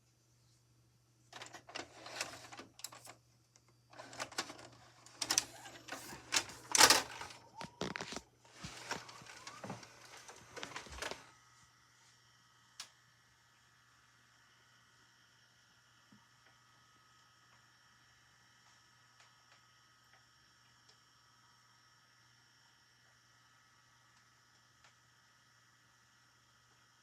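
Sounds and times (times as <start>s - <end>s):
faint steady whine: 0.0s - 27.0s
tape player mechanical whirring: 1.4s - 11.4s
plastic clicks and clatter: 4.0s - 11.2s.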